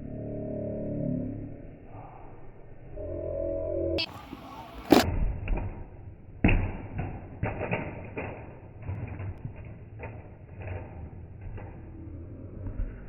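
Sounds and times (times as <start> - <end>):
toy truck knocking and clattering: 6.6 - 12.1.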